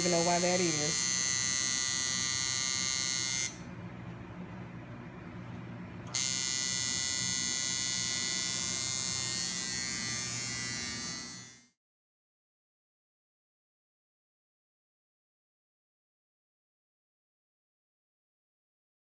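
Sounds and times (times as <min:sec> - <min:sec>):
tattoo machine buzzing: 0:00.0 - 0:03.7, 0:06.1 - 0:11.8.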